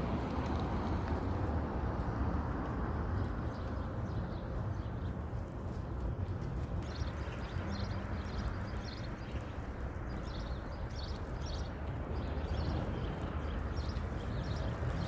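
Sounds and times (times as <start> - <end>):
wind rumble on microphone: 0.0 - 15.0
small birds chirping: 3.2 - 15.0.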